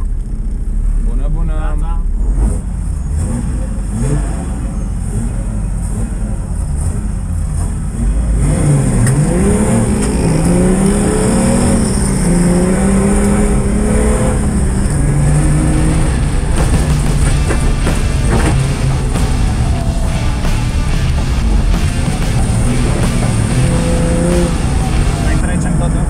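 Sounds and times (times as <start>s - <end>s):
car engine accelerating: 0.0s - 26.0s
tyre and chassis rumble: 0.0s - 26.0s.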